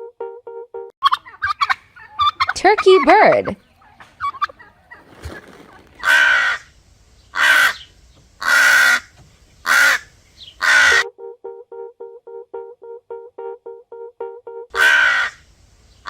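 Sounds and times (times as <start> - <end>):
soft plucked tune: 0.0 - 0.9, 11.0 - 14.7
crow cawing: 6.0 - 6.7, 7.3 - 11.0, 14.8 - 15.4.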